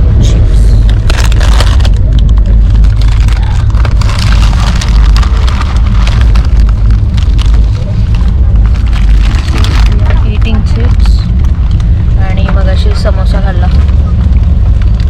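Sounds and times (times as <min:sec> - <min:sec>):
passenger train rumbling: 0:00.0 - 0:15.0
rattling crackle: 0:00.0 - 0:15.0.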